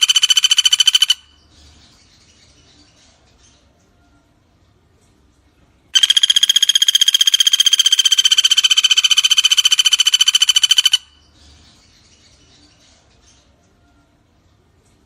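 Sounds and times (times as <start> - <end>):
woodpecker rattling call: 0.0 - 1.4, 6.0 - 11.3
faint bird chirps: 0.0 - 15.0.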